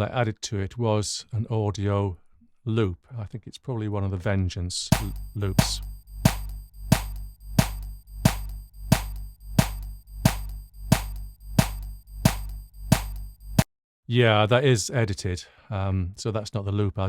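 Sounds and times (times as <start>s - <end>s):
electronic percussion clicks: 4.9s - 13.7s
low synth tone: 5.0s - 13.6s.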